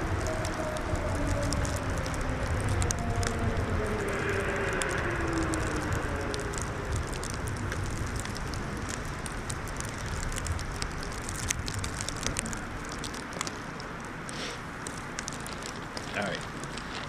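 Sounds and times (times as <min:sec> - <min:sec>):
distant snowmobile engines passing: 0:00.0 - 0:11.2
light crackles: 0:00.0 - 0:17.0
wind rumble on microphone: 0:00.0 - 0:17.0.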